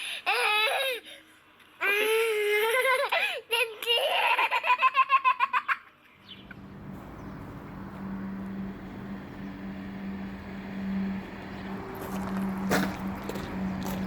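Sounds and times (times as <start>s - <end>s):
steady low hum: 6.2s - 14.0s.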